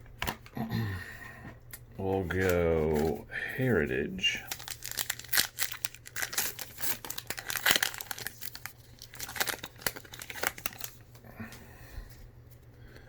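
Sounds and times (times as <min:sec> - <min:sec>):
card pack wrapper tearing: 0:02.2 - 0:03.2, 0:04.3 - 0:11.0.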